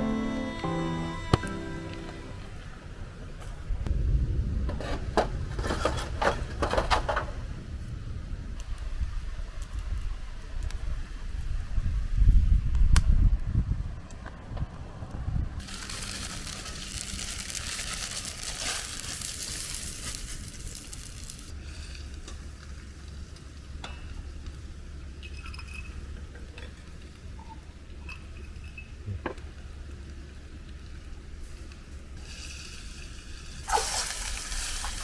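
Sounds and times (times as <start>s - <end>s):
food sizzling in a wok: 15.6s - 23.7s, 32.2s - 35.0s.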